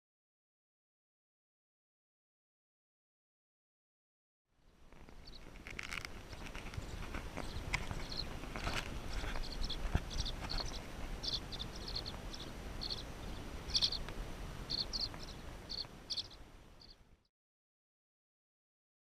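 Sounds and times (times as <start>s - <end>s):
low outdoor rumble: 4.6s - 17.2s
bird chirping: 4.7s - 17.3s.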